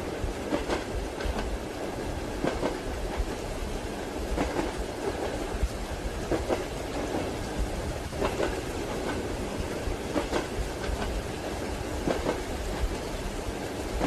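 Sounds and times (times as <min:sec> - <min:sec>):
train wheels clacking over rail joints: 0:00.0 - 0:01.6, 0:02.4 - 0:03.4, 0:04.3 - 0:05.4, 0:06.2 - 0:13.1
rain hissing: 0:00.0 - 0:14.0
steady train rumble: 0:00.0 - 0:14.0.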